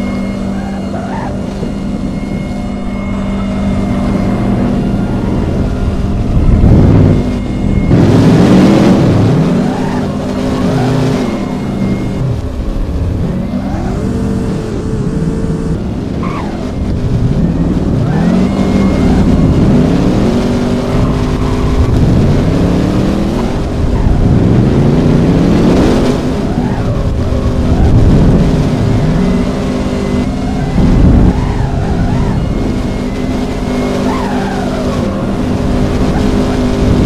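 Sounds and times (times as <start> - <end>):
car engines revving: 0.0 - 37.0.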